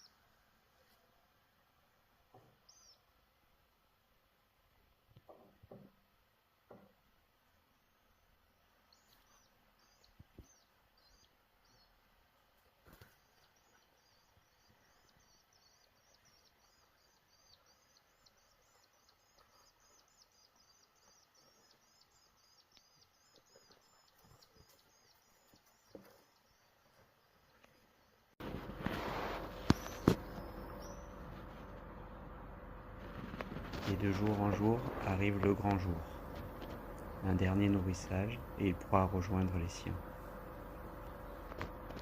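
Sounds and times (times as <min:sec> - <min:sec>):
faint high chirping: 0:02.3 - 0:03.2, 0:07.8 - 0:12.0, 0:12.9 - 0:28.3, 0:29.4 - 0:41.9.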